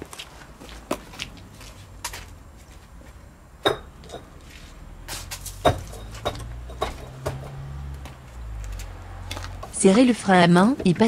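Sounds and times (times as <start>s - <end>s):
sharp knocks and clicks: 5.5s - 8.2s.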